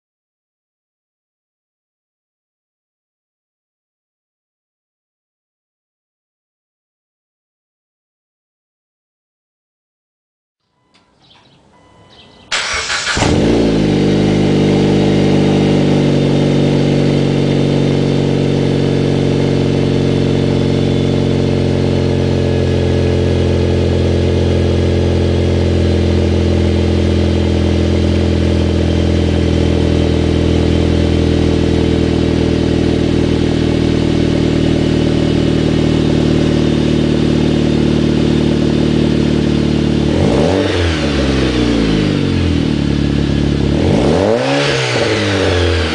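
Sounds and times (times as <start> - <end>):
car engine cold start and idle: 10.8 - 45.9.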